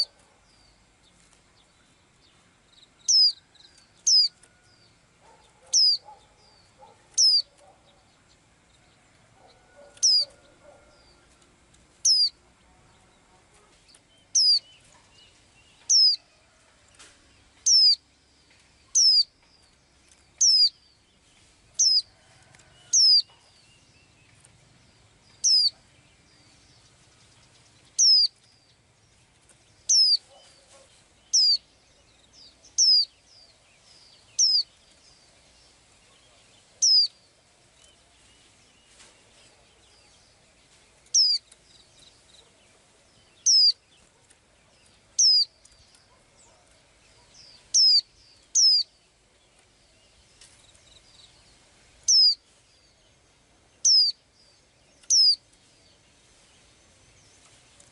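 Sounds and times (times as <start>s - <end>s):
small bird calling: 3.0s - 4.4s, 5.2s - 8.1s, 9.4s - 11.2s, 12.0s - 12.4s, 13.3s - 15.2s, 15.8s - 16.3s, 17.6s - 18.0s, 18.8s - 19.4s, 20.4s - 20.8s, 21.8s - 22.1s, 22.8s - 23.4s, 25.4s - 25.9s, 28.0s - 28.4s, 29.9s - 33.2s, 34.1s - 34.7s, 36.0s - 37.2s, 41.0s - 41.5s, 42.4s - 49.0s, 52.0s - 52.4s, 53.8s - 54.3s, 54.9s - 55.4s.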